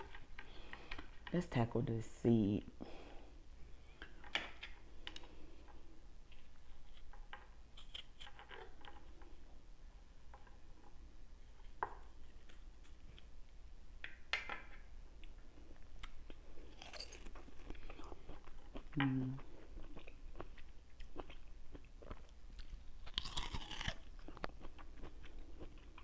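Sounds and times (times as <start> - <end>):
chewing and biting: 16.0 - 26.0.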